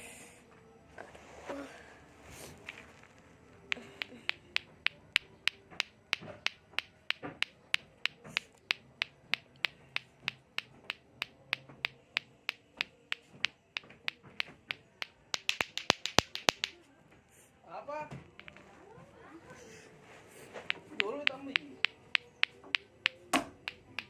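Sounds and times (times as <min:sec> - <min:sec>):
plastic balls clacking together: 0:02.6 - 0:02.9, 0:03.7 - 0:16.8, 0:18.3 - 0:18.7, 0:20.7 - 0:24.0.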